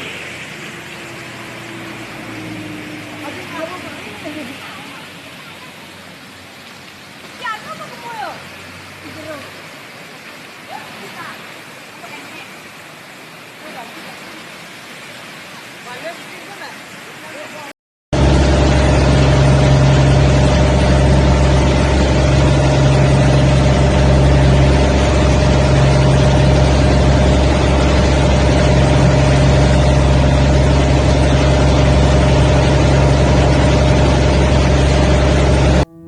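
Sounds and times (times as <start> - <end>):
loud engine drone: 0.0 - 5.4, 18.1 - 36.0
rushing noise: 0.0 - 5.4, 18.2 - 36.0.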